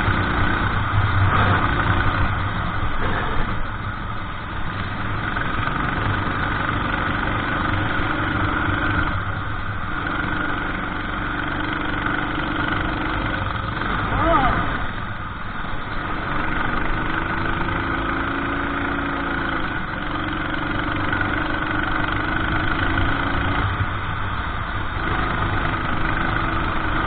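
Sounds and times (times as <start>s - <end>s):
kart engine racing: 0.0s - 27.0s.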